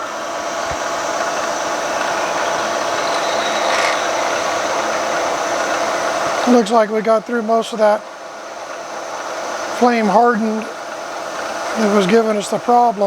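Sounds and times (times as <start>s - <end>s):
drill bit cutting steel: 1.5s - 6.6s.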